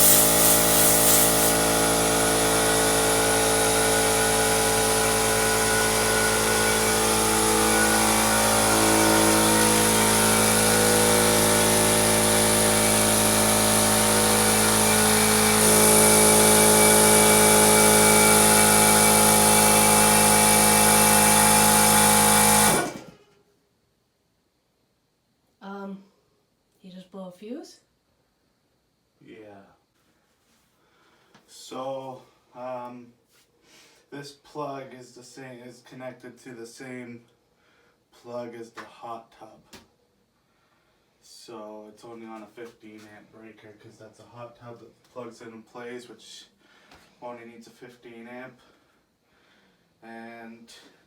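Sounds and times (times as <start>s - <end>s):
air hissing: 0.0s - 2.0s
air compressor motor hum: 0.0s - 23.2s
compressor winding down: 0.0s - 23.2s.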